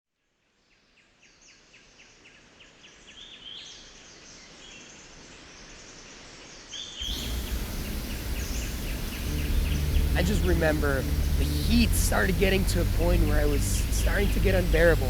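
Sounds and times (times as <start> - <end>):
higher calls: 7.0 - 15.0
short chirping calls: 7.0 - 15.0
steady hiss: 7.0 - 15.0.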